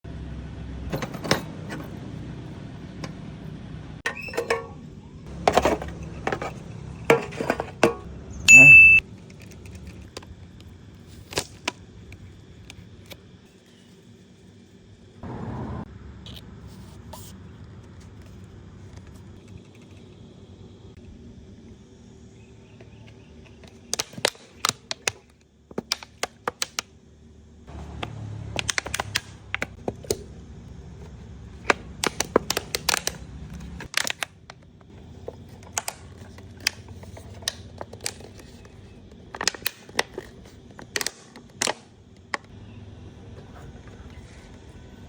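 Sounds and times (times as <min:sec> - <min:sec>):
hard objects clicking and knocking: 0:04.1 - 0:08.1, 0:27.9 - 0:30.2, 0:31.0 - 0:42.5.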